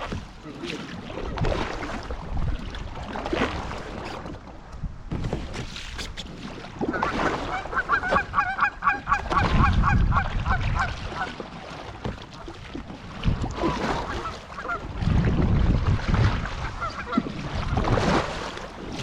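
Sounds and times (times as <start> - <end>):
geese honking: 7.0 - 9.2.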